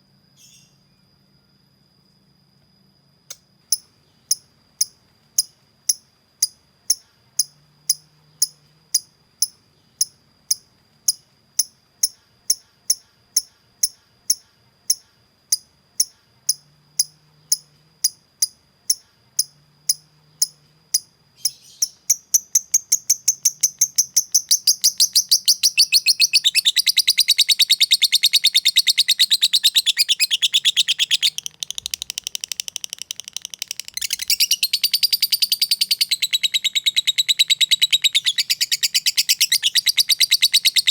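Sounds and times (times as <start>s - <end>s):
lovebird chips and trill: 19.9s - 40.9s.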